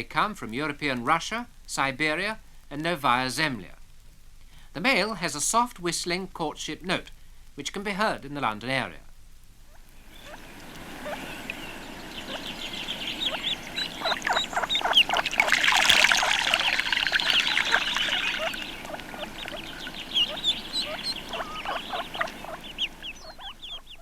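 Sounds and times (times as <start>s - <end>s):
ducks whistling calls: 10.0s - 24.0s.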